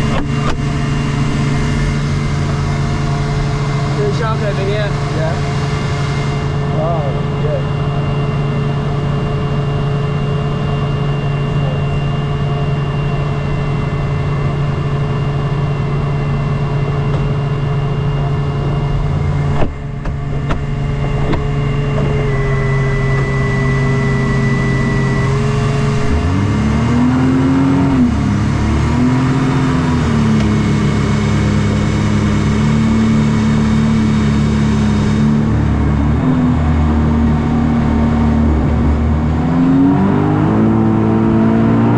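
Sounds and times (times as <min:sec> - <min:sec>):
jet boat engine running: 0:00.0 - 0:41.9.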